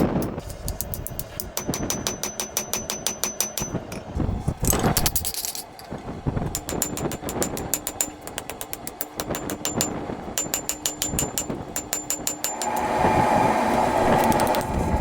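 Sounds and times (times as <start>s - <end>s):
hammer striking metal: 0.8s - 4.0s, 6.5s - 13.0s
steady rushing noise: 12.4s - 15.0s.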